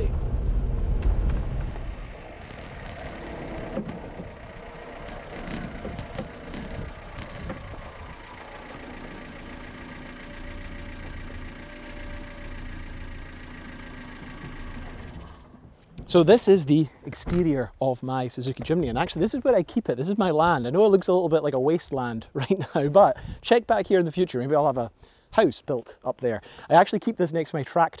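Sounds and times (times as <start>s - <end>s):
car engine idling from inside cabin: 0.0s - 17.0s.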